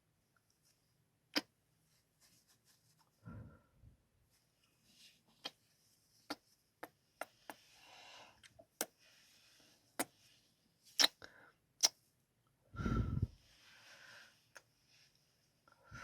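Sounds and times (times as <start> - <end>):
soft breathing: 3.1 - 3.9, 7.2 - 10.6, 12.7 - 16.0.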